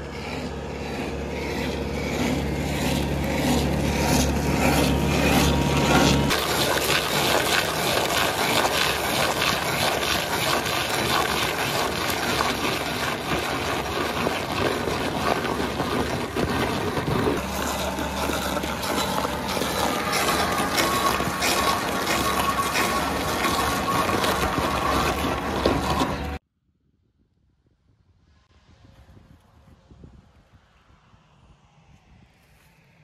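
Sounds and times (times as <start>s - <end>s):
mulcher grinding soil and vegetation: 0.0s - 26.4s
engine tone: 0.0s - 27.5s, 28.2s - 33.0s.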